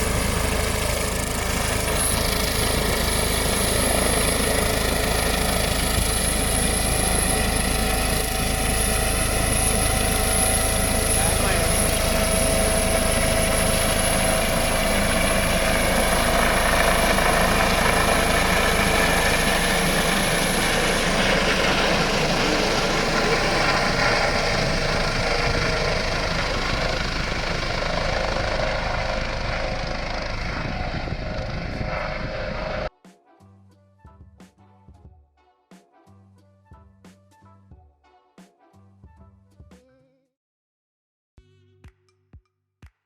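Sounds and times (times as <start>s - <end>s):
helicopter rotor and engine: 0.0s - 32.9s
high whine: 0.0s - 32.9s.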